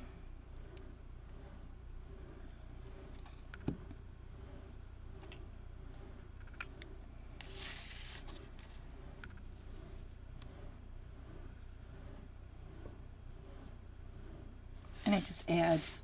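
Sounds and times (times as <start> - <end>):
low steady room hum: 0.0 - 16.0
paper rustling: 7.4 - 8.8, 14.9 - 16.0.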